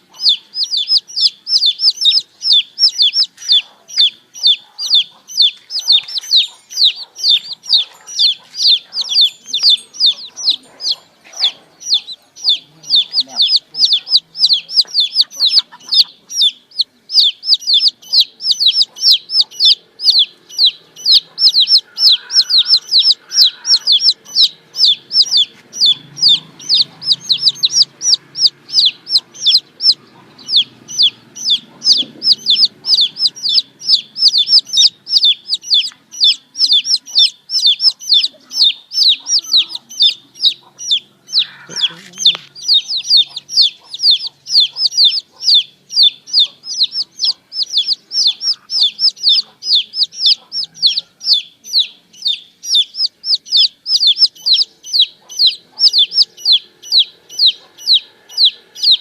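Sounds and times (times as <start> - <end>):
baby chicks peeping: 0.0 - 59.0.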